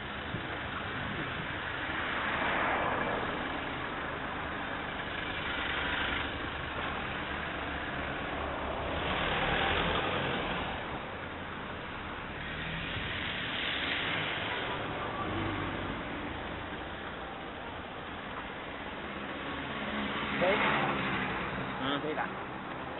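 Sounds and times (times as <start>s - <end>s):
car engine and road noise: 0.0s - 22.9s.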